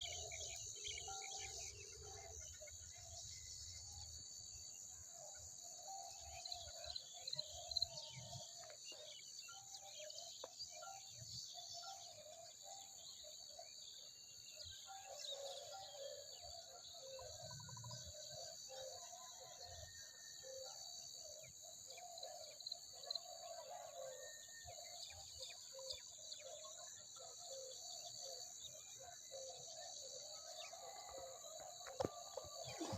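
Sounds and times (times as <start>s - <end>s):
insects trilling: 27.5s - 32.9s.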